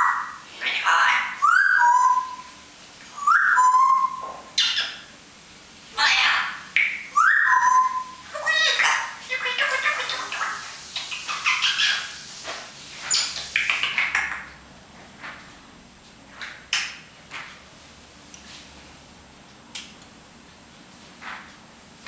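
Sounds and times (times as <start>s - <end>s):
parrot chattering calls: 0.0s - 2.6s, 3.2s - 5.1s, 6.0s - 12.3s.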